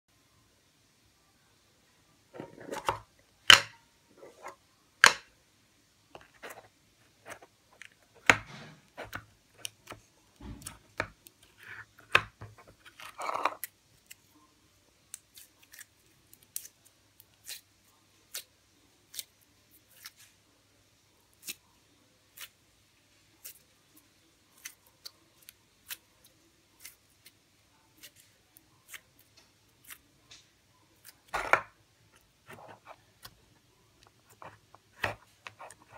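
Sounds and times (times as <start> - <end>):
sticky slime squishes: 15.1 - 20.3, 21.3 - 21.6, 22.3 - 22.6, 23.4 - 35.9.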